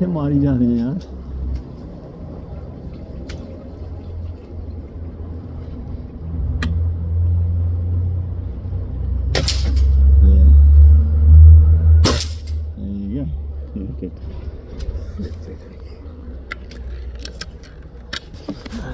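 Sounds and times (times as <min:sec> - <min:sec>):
heavy low rumble: 0:00.0 - 0:18.9
air rifle shots: 0:09.4 - 0:10.0, 0:12.0 - 0:12.6.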